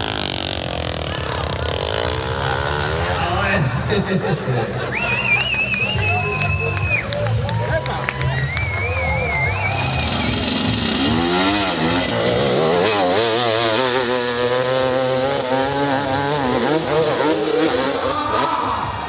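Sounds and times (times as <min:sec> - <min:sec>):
dirt bike engine revving: 0:00.0 - 0:04.5, 0:09.0 - 0:19.0.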